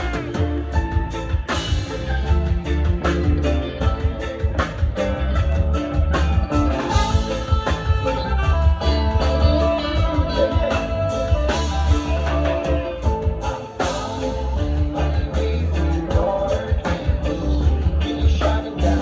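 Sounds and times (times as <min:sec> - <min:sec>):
band music: 0:00.0 - 0:19.0
drums keeping a beat: 0:00.0 - 0:19.0
guitar: 0:00.0 - 0:19.0
heavy bass line: 0:00.0 - 0:19.0.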